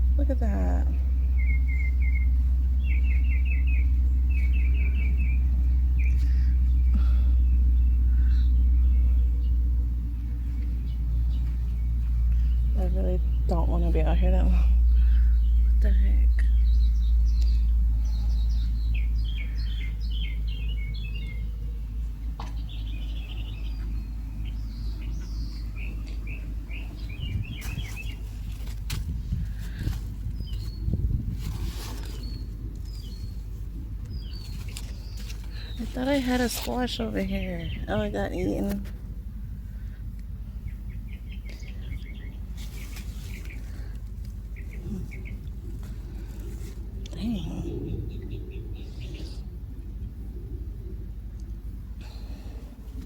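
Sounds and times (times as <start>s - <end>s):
low rumble: 0.0s - 53.0s
small birds chirping: 0.0s - 53.0s.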